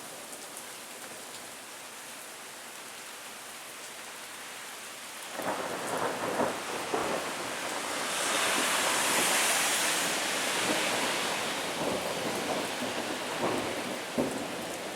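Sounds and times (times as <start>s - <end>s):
rain hissing: 5.4s - 14.9s.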